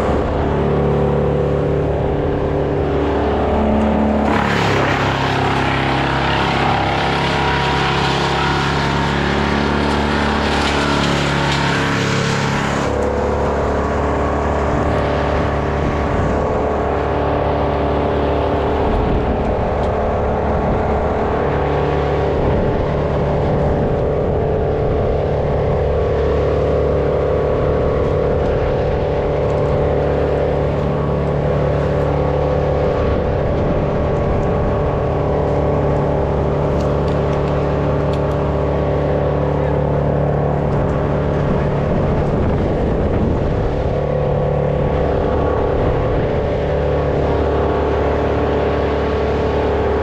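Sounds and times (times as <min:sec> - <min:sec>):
small engine running: 0:00.0 - 0:50.0.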